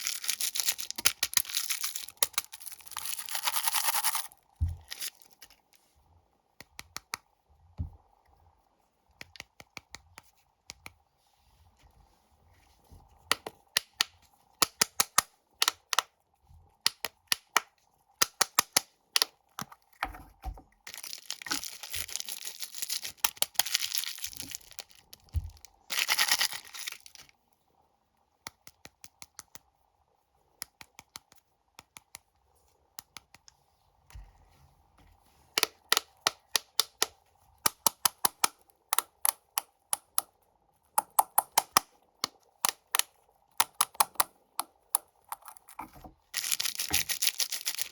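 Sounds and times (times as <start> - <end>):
wrapper crinkling and tearing: 0.0 - 5.6, 20.9 - 27.3, 46.3 - 47.9
tapping on snack wrappers: 20.9 - 27.2, 43.6 - 47.9.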